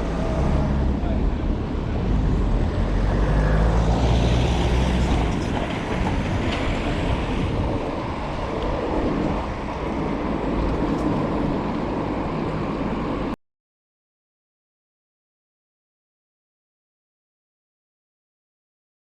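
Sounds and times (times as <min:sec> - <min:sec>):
wind on microphone: 0:04.4 - 0:13.3.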